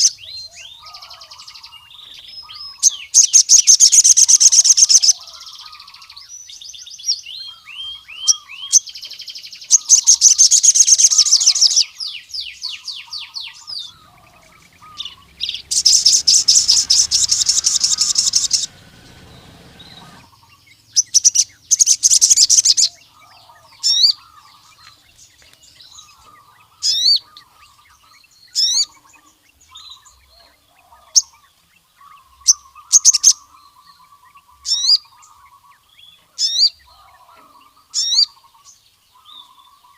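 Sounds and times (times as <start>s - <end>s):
soft low bird twittering: 0.0s - 39.9s
sharp high bird chirps: 13.5s - 22.9s
bird rattling trills: 13.6s - 22.8s.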